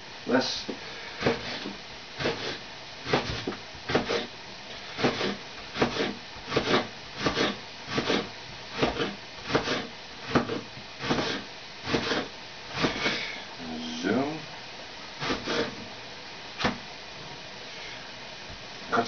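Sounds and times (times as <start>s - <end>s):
knife slicing leek on board: 1.2s - 4.3s, 5.0s - 13.0s.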